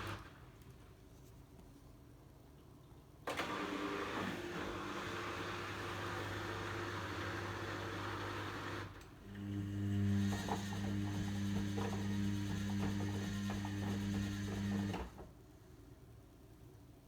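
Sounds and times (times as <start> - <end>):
washing machine running: 3.3 - 15.3.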